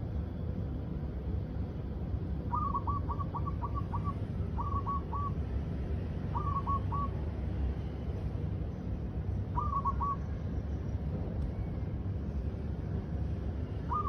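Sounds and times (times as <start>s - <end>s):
dove calling: 2.4s - 7.3s, 9.4s - 10.6s, 13.7s - 14.0s.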